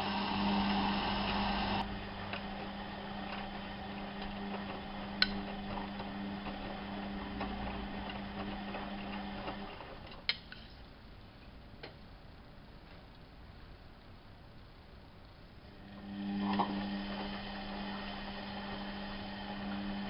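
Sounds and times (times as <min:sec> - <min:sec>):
washing machine humming: 0:00.0 - 0:10.3, 0:15.6 - 0:20.0.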